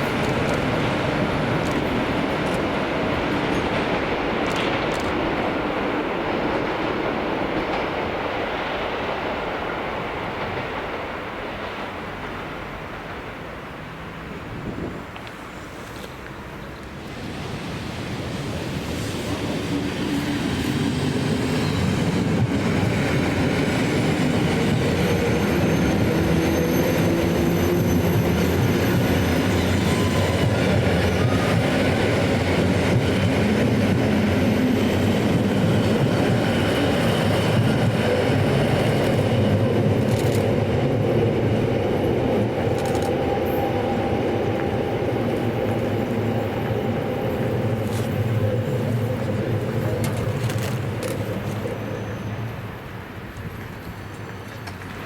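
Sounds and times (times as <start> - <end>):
train wheels rumbling: 0.0 - 55.0
faint high squeal: 24.7 - 30.4, 51.4 - 52.7.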